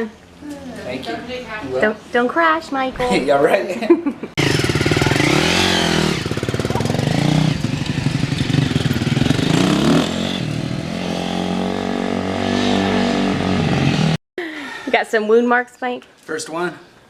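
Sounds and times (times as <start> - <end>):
dirt bike engine revving: 4.4 - 14.2.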